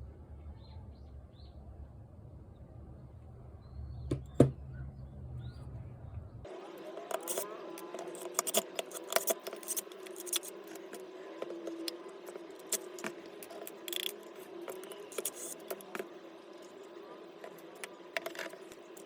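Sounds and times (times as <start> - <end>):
faint steady hum: 0.0 - 19.0
plastic and metal parts rattling: 8.0 - 10.8.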